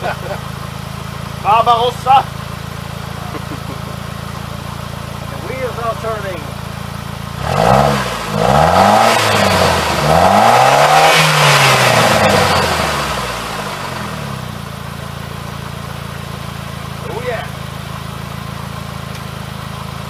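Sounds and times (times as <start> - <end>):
car engine revving: 0.0 - 15.0
car engine idling: 0.0 - 20.0.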